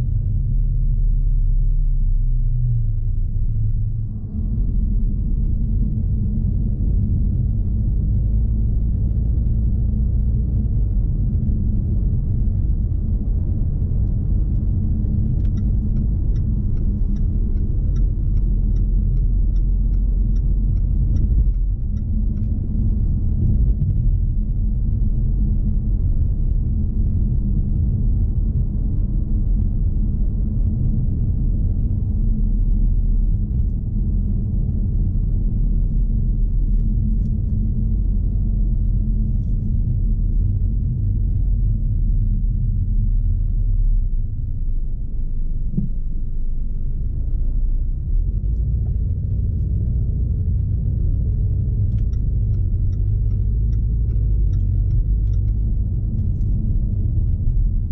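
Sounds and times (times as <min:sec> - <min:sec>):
car engine rumble: 0:00.0 - 0:57.9
road noise: 0:02.6 - 0:27.9, 0:44.3 - 0:57.9
light even ticking: 0:13.1 - 0:25.0, 0:48.3 - 0:57.8.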